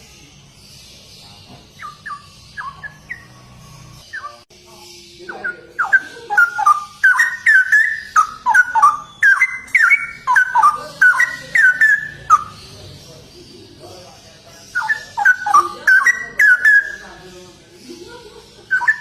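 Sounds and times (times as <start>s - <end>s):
bird singing warbling whistles: 5.3s - 12.5s, 14.7s - 17.0s, 18.7s - 19.0s.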